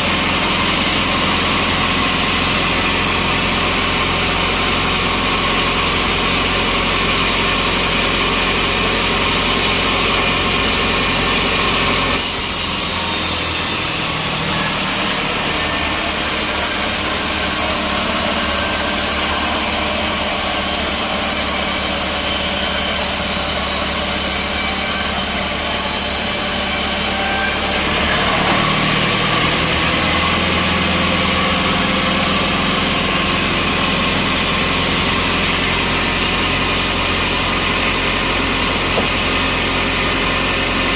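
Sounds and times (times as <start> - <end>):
saw cutting through log: 0.0 - 40.9
sawmill engine running: 0.0 - 40.9.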